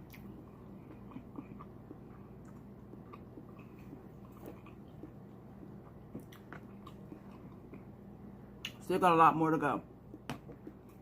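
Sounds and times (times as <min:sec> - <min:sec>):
person chewing with wet smacks: 0:00.0 - 0:08.0
faint low hum: 0:00.0 - 0:11.0.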